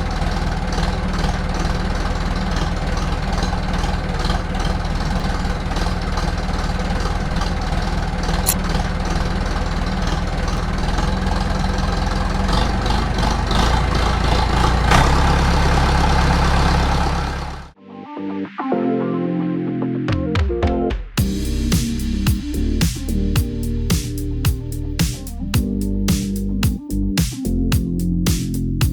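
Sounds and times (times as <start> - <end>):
engine idling: 0.0 - 17.8.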